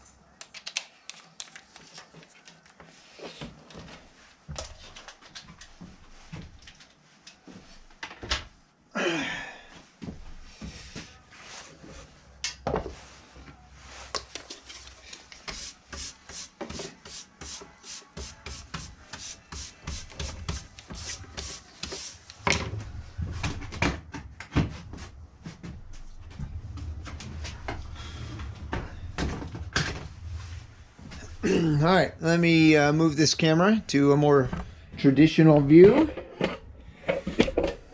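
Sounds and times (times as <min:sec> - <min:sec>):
rubbing and scraping strokes: 0:13.1 - 0:22.4.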